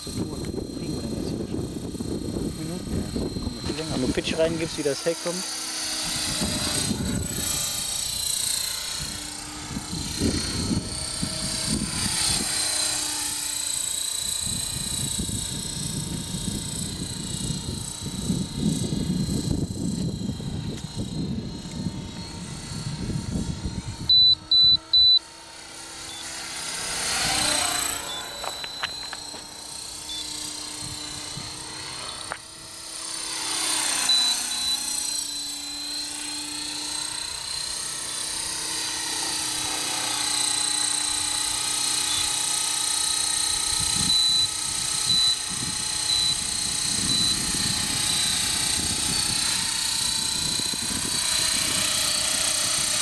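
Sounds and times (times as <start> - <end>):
rc helicopter rotor whine: 0.0 - 53.0
loud electronic beeps: 24.1 - 25.2, 28.0 - 29.3, 34.1 - 34.9, 46.1 - 46.4.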